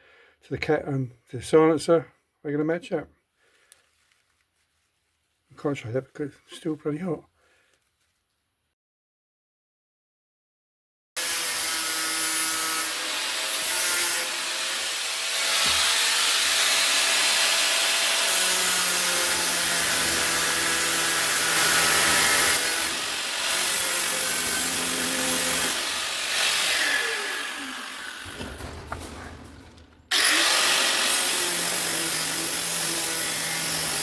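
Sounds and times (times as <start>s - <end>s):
power tool grinding steel: 11.2s - 34.0s.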